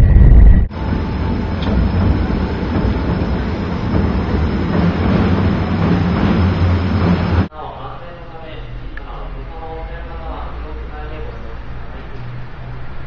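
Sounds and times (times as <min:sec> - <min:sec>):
trolley wheels rolling on rail: 0:00.7 - 0:07.5.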